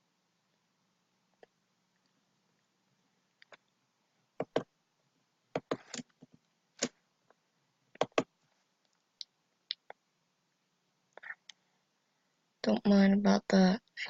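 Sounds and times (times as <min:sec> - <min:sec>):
mouse and keyboard clicking: 0:04.4 - 0:04.7, 0:05.6 - 0:06.1, 0:08.0 - 0:08.3.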